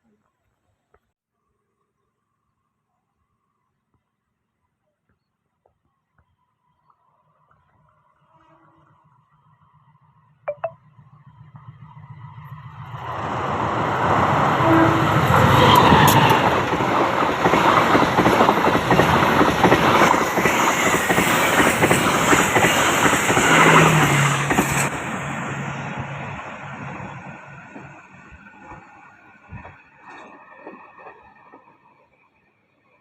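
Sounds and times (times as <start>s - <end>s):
train wheels clattering on rails: 15.3s - 25.0s.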